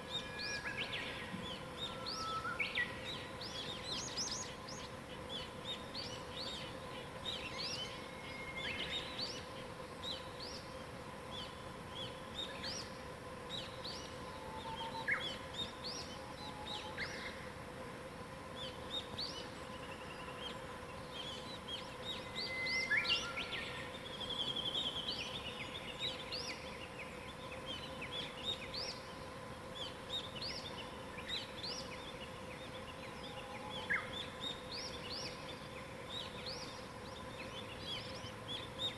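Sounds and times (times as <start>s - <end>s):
faint steady hum: 0.0s - 38.9s
songbirds chirping: 0.0s - 38.9s.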